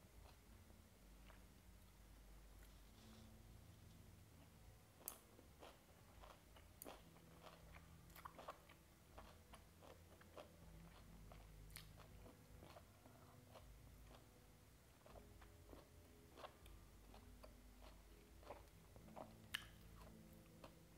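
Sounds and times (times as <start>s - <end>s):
chewing and crunching: 5.0s - 14.3s, 15.0s - 20.8s
wet mouth clicks: 19.6s - 19.8s.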